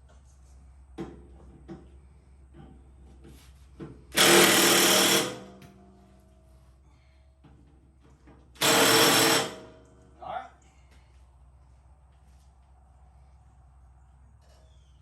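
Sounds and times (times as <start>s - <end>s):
impact wrench hammering: 4.1s - 5.8s, 8.6s - 9.9s.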